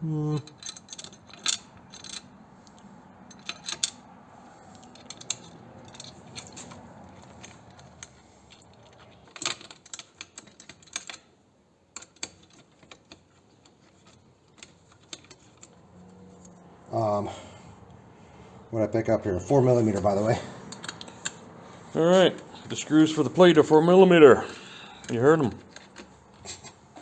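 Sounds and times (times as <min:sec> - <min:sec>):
small metal parts clicking: 0:00.4 - 0:16.7, 0:20.6 - 0:21.6.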